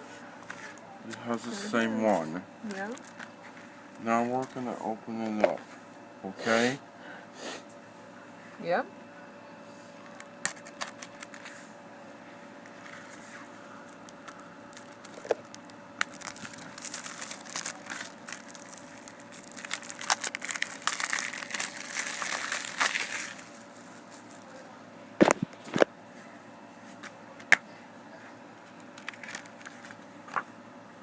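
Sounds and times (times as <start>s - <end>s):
plastic wrapping crinkling and tearing: 10.4s - 11.6s, 13.9s - 24.5s, 28.9s - 30.0s.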